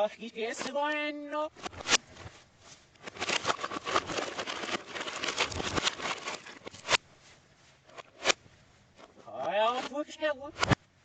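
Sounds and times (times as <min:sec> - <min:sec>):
rapid clatter of clicks: 0:03.0 - 0:07.0.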